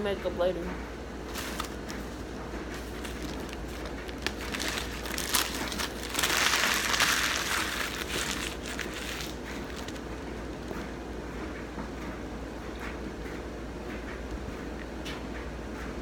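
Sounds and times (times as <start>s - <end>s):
steady low hum: 0.0s - 16.0s
paper packaging crinkling: 1.2s - 10.1s.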